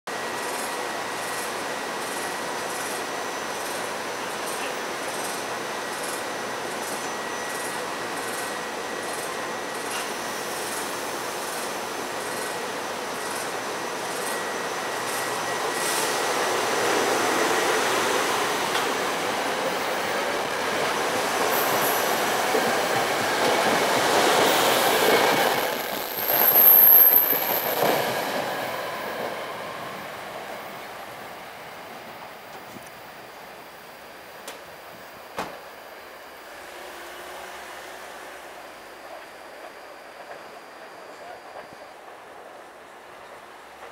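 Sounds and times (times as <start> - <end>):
electric train passing: 0.2 - 43.9
high wheel squeal: 21.1 - 29.6.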